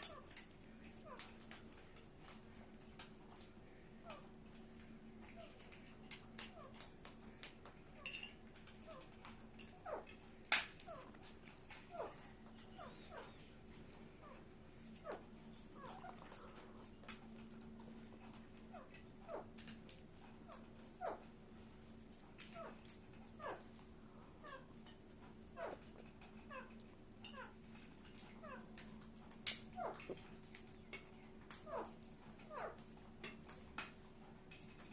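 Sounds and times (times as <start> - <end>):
parrot chirps: 15.8 - 16.6.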